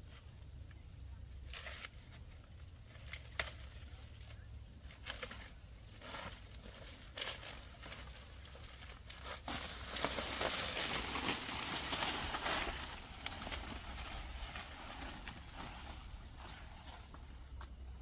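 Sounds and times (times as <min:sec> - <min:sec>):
dry vegetation rustling: 0:00.0 - 0:18.0
twigs snapping: 0:02.9 - 0:03.8, 0:09.4 - 0:13.9.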